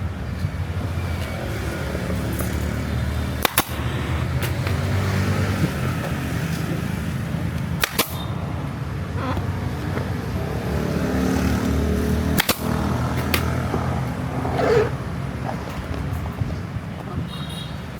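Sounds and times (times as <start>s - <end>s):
motor vehicles rumbling: 0.0s - 17.9s
sharp double clicks: 7.6s - 8.4s, 12.4s - 13.8s.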